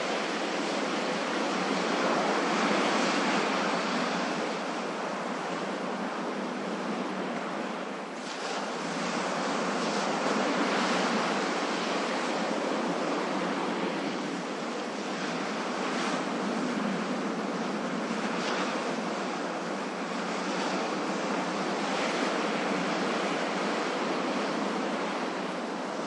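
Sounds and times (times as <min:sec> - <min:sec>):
ocean waves breaking: 0:00.0 - 0:26.0.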